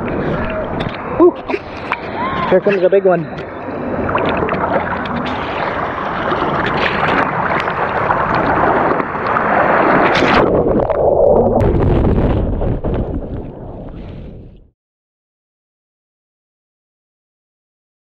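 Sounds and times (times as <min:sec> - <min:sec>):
waves surging at waterline: 0:00.0 - 0:10.5
water splashes: 0:00.0 - 0:13.6.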